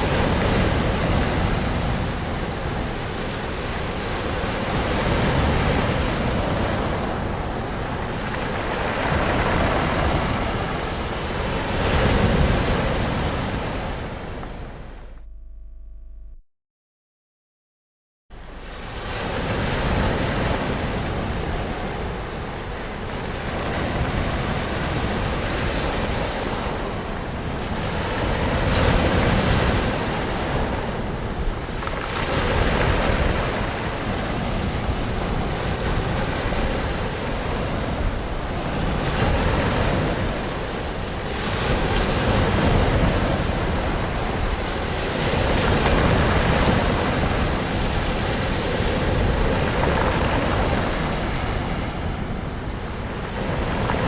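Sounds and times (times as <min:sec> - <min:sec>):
ocean waves breaking on shore: 0:00.0 - 0:15.1, 0:18.4 - 0:54.0
wind noise on microphone: 0:18.3 - 0:54.0.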